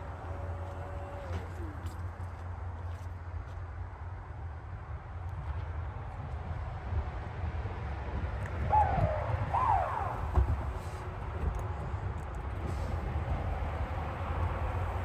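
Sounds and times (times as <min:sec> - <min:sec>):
car rumbling on the move: 0:08.7 - 0:11.0.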